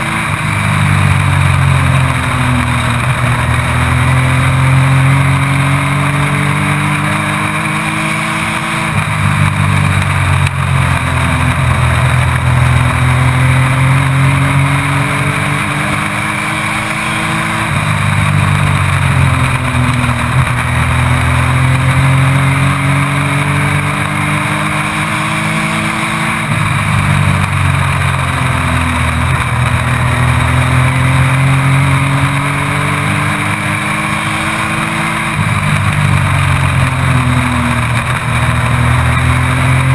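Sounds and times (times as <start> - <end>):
truck engine revving: 0.0 - 39.9.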